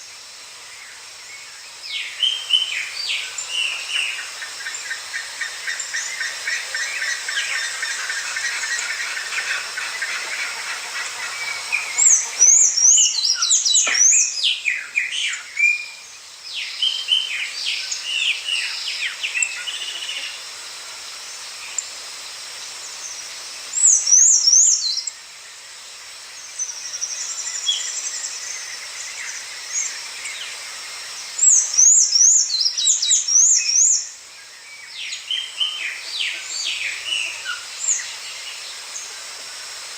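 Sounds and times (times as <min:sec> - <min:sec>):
wild birds singing and chirping: 0:00.0 - 0:39.9
high zigzagging bird song: 0:02.0 - 0:15.6, 0:23.8 - 0:25.1.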